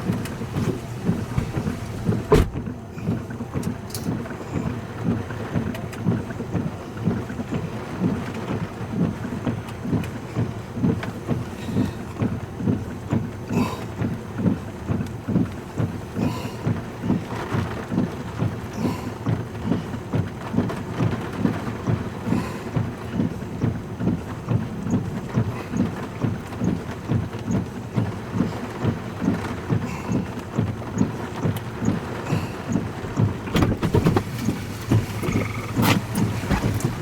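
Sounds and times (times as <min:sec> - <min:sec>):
rhythmic thumping: 0:00.0 - 0:03.4
vehicle driving on dirt road: 0:00.0 - 0:37.0.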